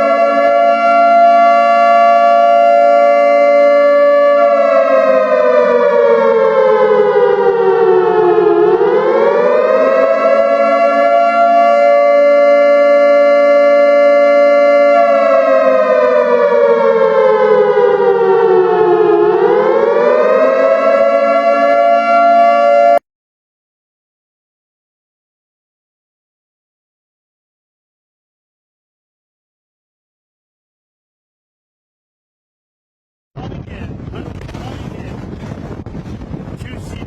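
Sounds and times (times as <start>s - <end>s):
multi-tone siren: 0.0s - 23.0s.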